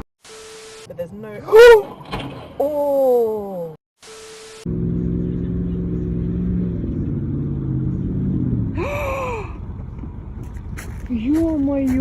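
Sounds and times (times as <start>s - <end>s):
vehicle engine running: 4.6s - 12.0s.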